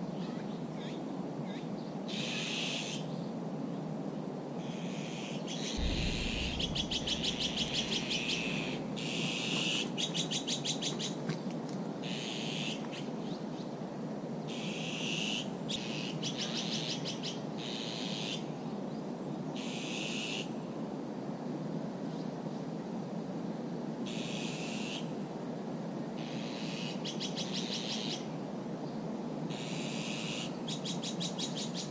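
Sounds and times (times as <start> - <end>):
steady low hum: 5.8 - 9.6
songbirds singing trills: 14.5 - 20.5, 26.2 - 31.9.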